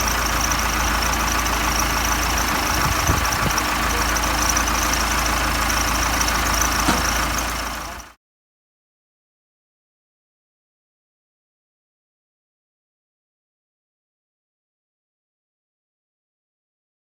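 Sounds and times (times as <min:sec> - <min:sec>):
backhoe engine running: 0:00.0 - 0:08.2.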